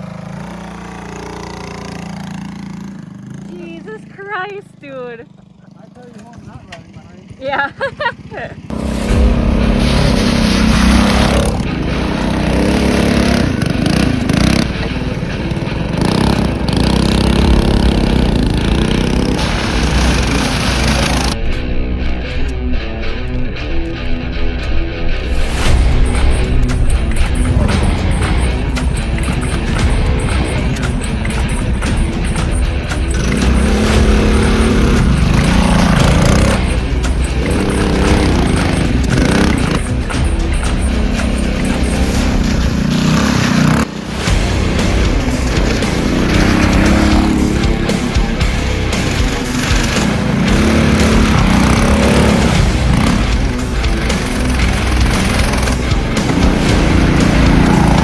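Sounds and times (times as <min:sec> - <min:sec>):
mini bike engine revving: 0:00.0 - 0:21.4, 0:27.3 - 0:58.0
loud rushing noise: 0:08.7 - 0:22.0, 0:25.1 - 0:58.0.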